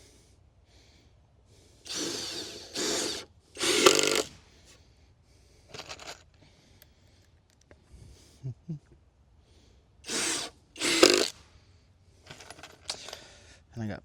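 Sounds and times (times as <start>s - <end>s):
cordless power drill running: 1.8s - 4.4s, 10.1s - 11.4s.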